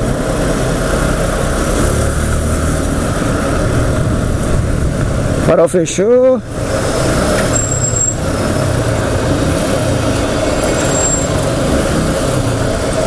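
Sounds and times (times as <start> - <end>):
heavy vehicles running: 0.0 - 13.0
thin high squeal: 7.5 - 8.2, 10.7 - 11.4.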